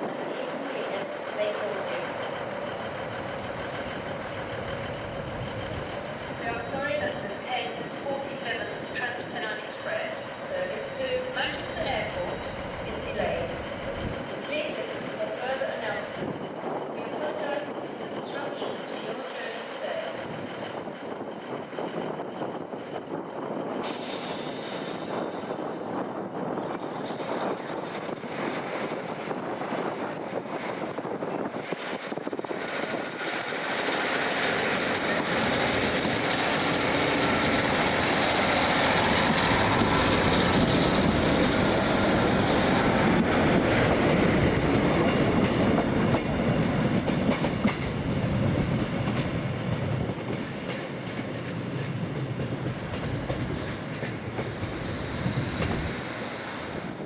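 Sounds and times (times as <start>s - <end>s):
train rumble and clatter on rails: 0.0s - 57.0s.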